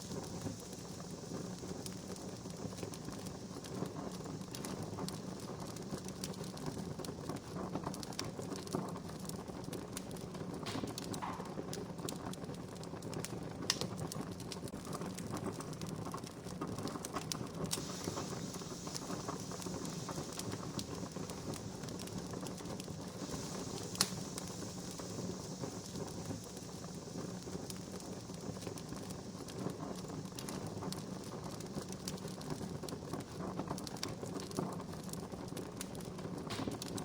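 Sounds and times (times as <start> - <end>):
sharp pops of fire: 0.0 - 37.0
wood fire crackling: 0.0 - 37.0.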